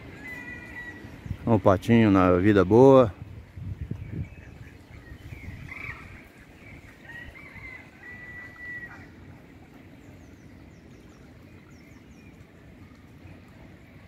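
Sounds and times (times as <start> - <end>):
low outdoor rumble: 0.0 - 14.0
bird whistling calls: 4.1 - 9.1.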